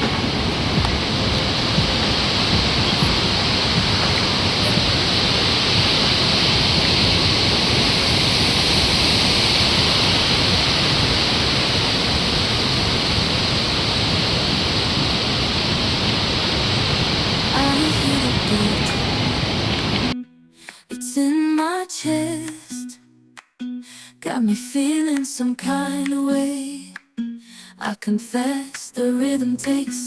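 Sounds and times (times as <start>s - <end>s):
stream water rushing: 0.0s - 20.2s.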